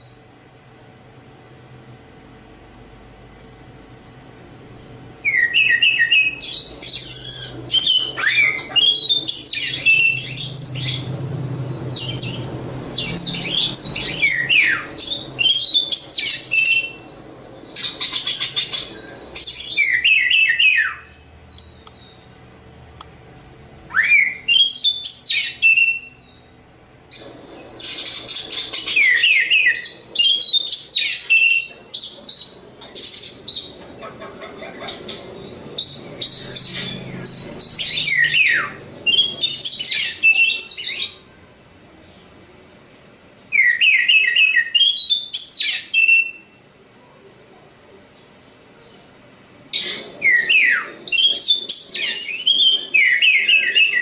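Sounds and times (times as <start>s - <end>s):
songbird singing varied song: 3.6s - 22.4s, 23.9s - 46.6s, 47.9s - 54.0s.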